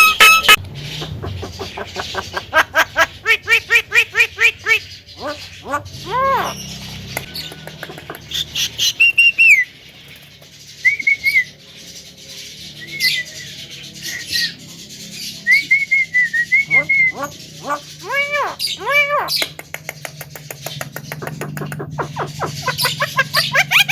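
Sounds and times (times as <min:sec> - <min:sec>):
myna bird calling: 0:00.0 - 0:10.0, 0:16.4 - 0:23.9.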